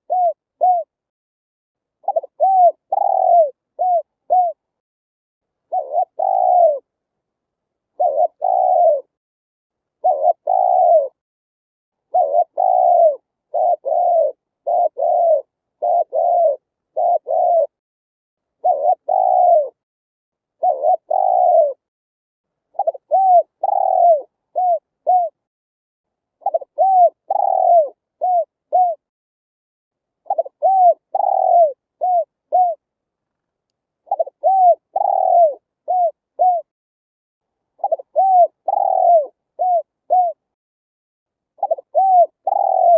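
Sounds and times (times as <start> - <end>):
dove cooing: 0.0 - 1.0, 2.0 - 4.6, 5.7 - 6.9, 8.0 - 9.1, 10.0 - 11.2, 12.1 - 17.8, 18.6 - 19.8, 20.6 - 21.9, 22.7 - 25.4, 26.4 - 29.0, 30.2 - 32.8, 34.0 - 36.7, 37.8 - 40.4, 41.6 - 42.9.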